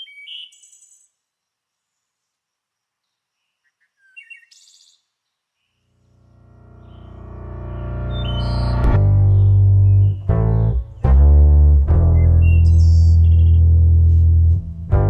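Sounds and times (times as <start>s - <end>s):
birds chirping: 3.1s - 11.2s
guitar music: 6.4s - 15.0s.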